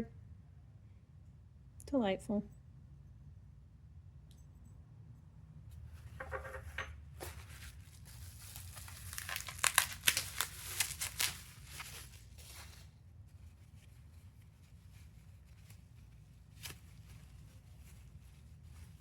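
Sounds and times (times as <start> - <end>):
packing material ripping: 7.2 - 12.9, 15.6 - 18.6
bubble wrap crinkling: 7.2 - 19.0.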